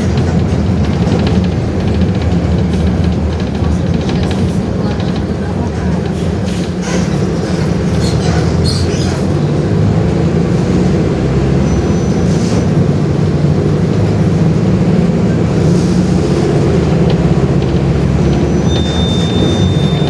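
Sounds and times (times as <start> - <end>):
bus diesel engine running: 0.0 - 20.0
short high squeaks: 18.4 - 20.0.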